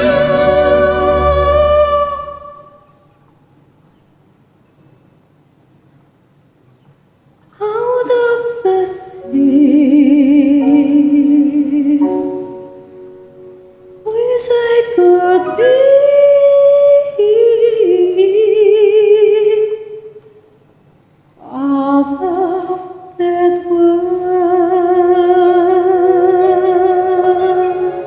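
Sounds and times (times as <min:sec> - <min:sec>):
woman singing karaoke: 0:07.6 - 0:12.2, 0:14.1 - 0:20.2, 0:21.4 - 0:28.0.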